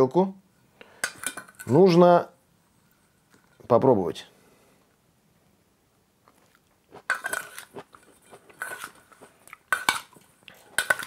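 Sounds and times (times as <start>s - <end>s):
crunchy wet chewing: 6.2s - 10.8s.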